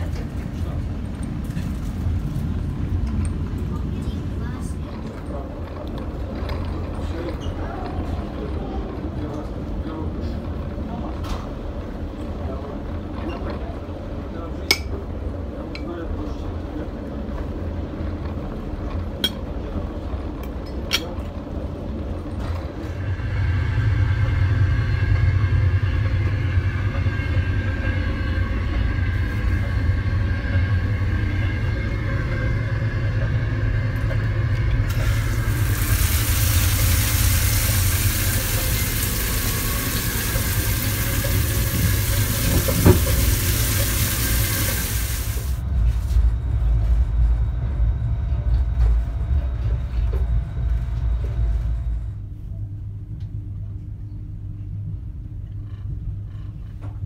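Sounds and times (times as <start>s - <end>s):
train rumble from inside carriage: 0.0s - 57.0s
strong even hiss: 34.9s - 45.6s.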